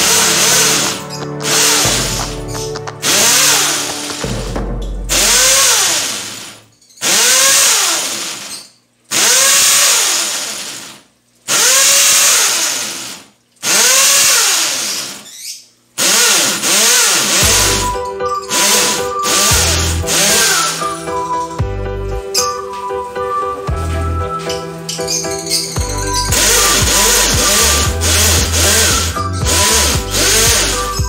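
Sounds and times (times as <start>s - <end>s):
power drill bursts on tile: 0.0s - 4.3s, 5.1s - 21.4s, 24.5s - 31.0s
background music: 0.0s - 6.2s, 17.3s - 31.0s.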